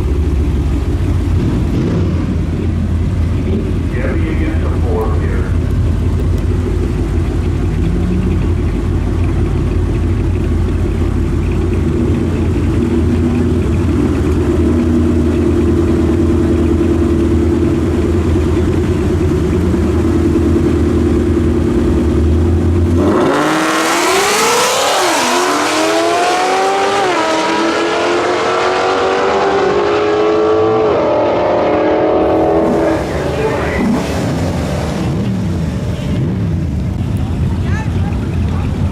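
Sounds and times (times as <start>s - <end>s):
car engine revving through gears: 6.1s - 9.4s, 11.5s - 36.5s.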